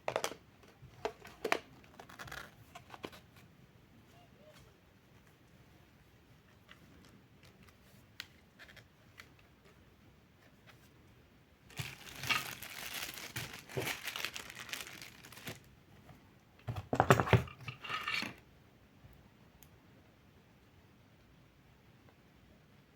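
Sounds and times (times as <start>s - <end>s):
crinkly packaging crumpled by hand: 11.7s - 15.8s.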